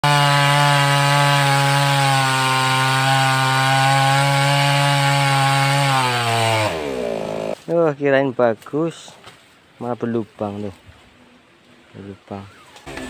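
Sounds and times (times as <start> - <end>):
chainsaw sawing through wood: 0.0 - 7.7, 12.5 - 13.0.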